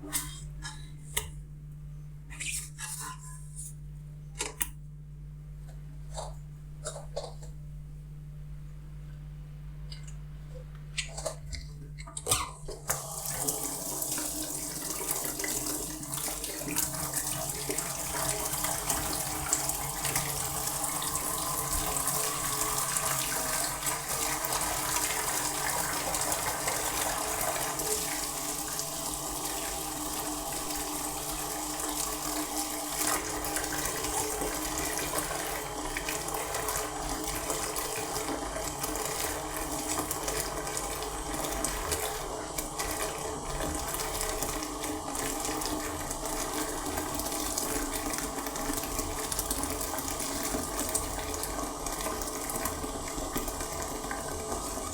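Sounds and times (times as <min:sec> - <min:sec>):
tap water running into sink: 0:11.0 - 0:54.9.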